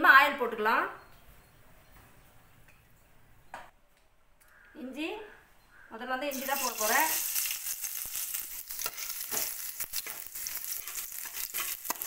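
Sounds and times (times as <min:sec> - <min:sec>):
ginger sizzling in hot oil: 0:06.3 - 0:12.0
spatula scraping a metal pan: 0:06.4 - 0:12.0.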